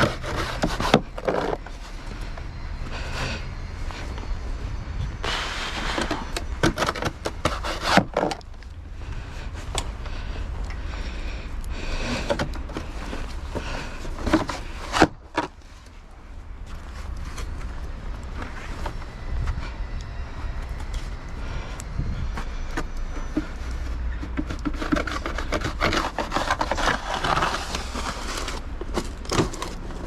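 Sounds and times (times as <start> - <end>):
low rumble: 16.0 - 24.1.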